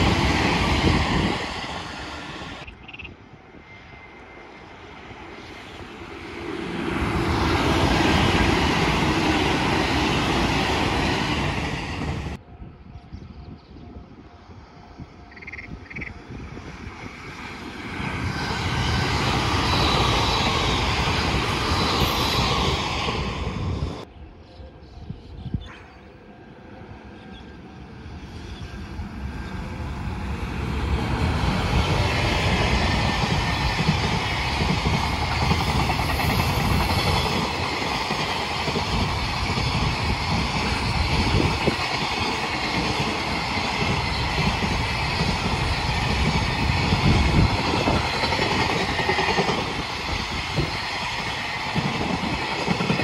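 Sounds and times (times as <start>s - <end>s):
train running on rails: 0.0s - 53.0s.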